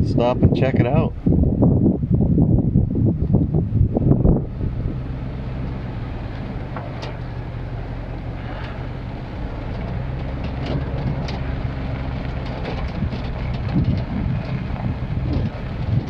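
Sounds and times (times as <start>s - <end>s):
pickup truck engine droning: 0.0s - 16.0s
light clicks and rattles: 5.3s - 16.0s.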